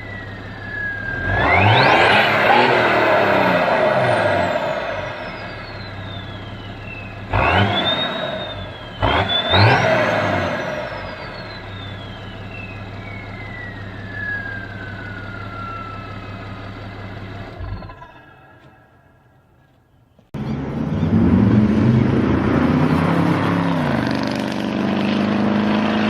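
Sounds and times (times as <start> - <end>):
turbo whistle: 0.0 - 16.6
diesel engine revving: 0.0 - 19.5, 20.2 - 26.0.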